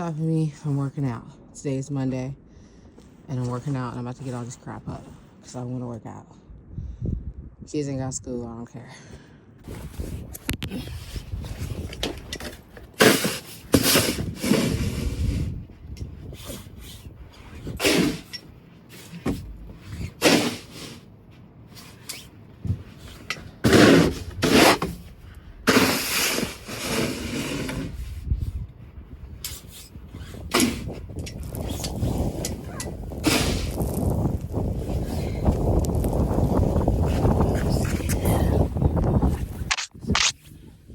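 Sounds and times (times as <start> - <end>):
snow shovel scraping: 13.0 - 15.5, 17.8 - 18.3, 19.8 - 21.0, 22.9 - 25.0, 25.7 - 28.2, 30.2 - 37.4.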